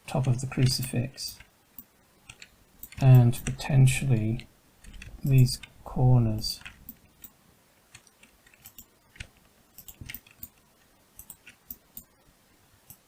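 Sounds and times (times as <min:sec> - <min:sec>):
computer mouse clicks: 0:00.2 - 0:03.6, 0:04.8 - 0:05.8, 0:06.6 - 0:12.2
keyboard key presses: 0:02.2 - 0:03.6, 0:04.8 - 0:05.8, 0:07.9 - 0:10.6.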